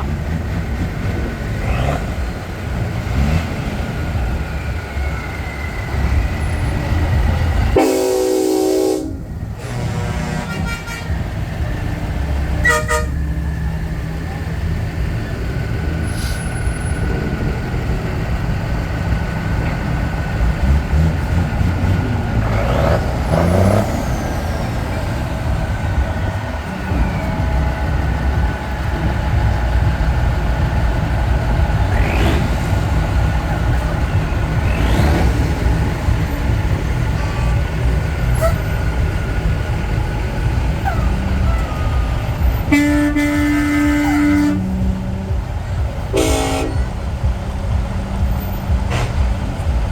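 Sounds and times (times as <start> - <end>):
diesel truck engines rumbling: 0.0 - 49.9
air horn: 7.7 - 11.4, 12.6 - 13.4, 41.4 - 45.2, 46.1 - 47.0.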